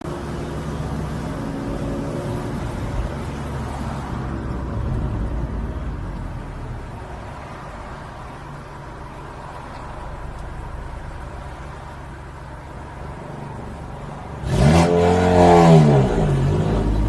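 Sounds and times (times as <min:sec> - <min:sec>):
car engine exhaust note: 0:14.3 - 0:17.0.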